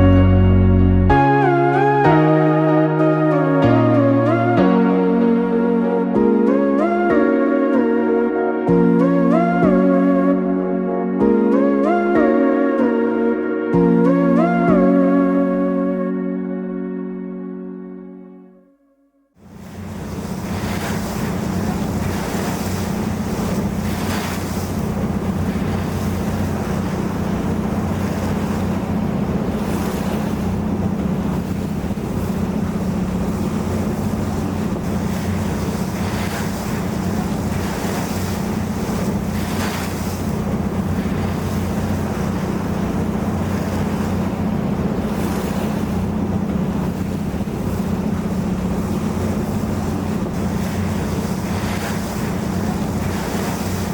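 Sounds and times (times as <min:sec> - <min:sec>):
boat engine humming: 0:00.0 - 0:18.4, 0:19.4 - 0:53.9
water rushing past hull: 0:19.4 - 0:53.9
wind buffeting microphone: 0:19.5 - 0:53.9.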